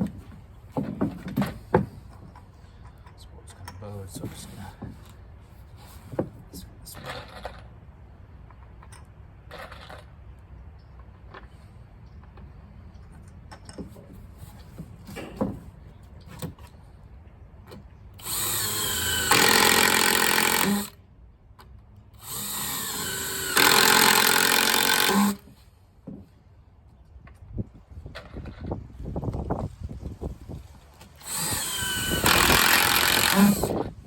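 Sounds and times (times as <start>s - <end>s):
power drill drilling into deck board: 18.2s - 21.0s, 22.2s - 25.4s, 31.2s - 33.9s.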